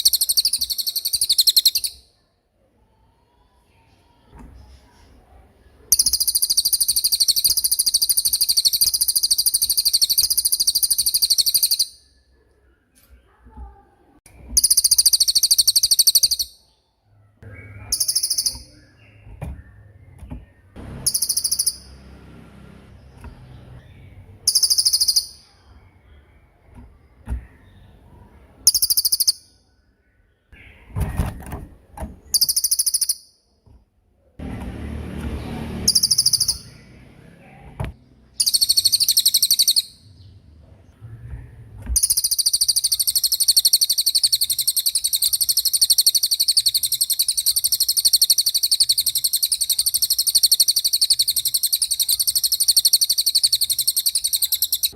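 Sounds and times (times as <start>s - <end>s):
songbird high rapid trills: 35.8s - 37.0s.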